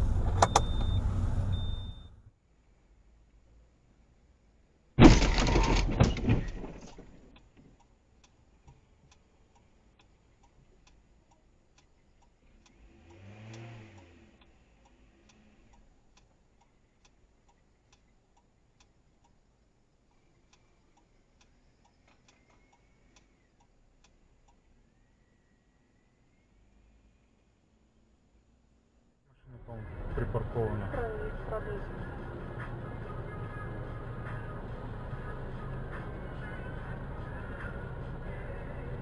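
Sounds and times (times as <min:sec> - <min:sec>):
car crash impact: 0:05.0 - 0:07.3
vehicle passing by: 0:12.5 - 0:15.7.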